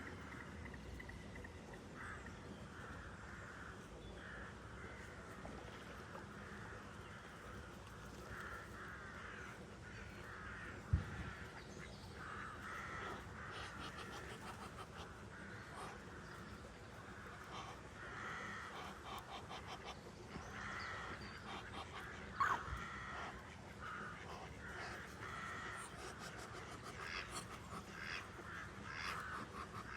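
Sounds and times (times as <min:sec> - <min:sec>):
birds harsh calls: 0:08.4 - 0:29.9.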